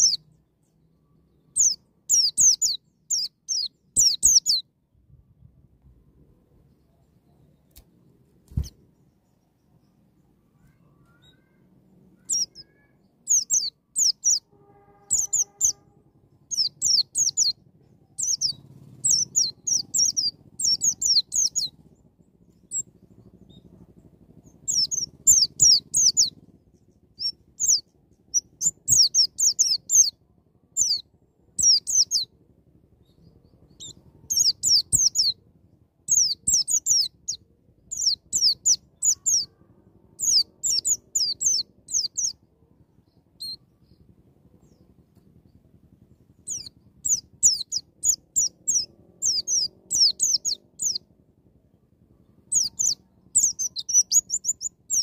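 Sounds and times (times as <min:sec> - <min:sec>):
bird singing high sharp notes: 0:01.6 - 0:04.6, 0:12.2 - 0:15.9, 0:16.5 - 0:17.6.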